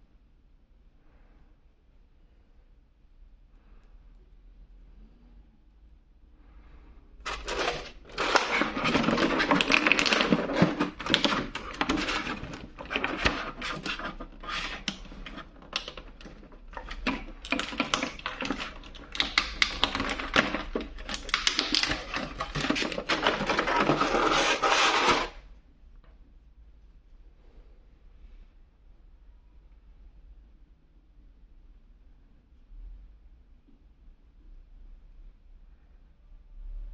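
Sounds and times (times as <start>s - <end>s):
plastic packaging crackling: 7.2s - 25.4s.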